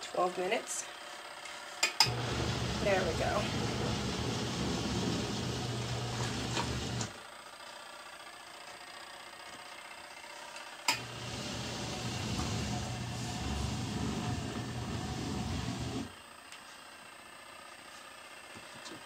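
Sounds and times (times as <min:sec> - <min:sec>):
washing machine motor churning: 0:02.0 - 0:07.2, 0:10.9 - 0:16.2.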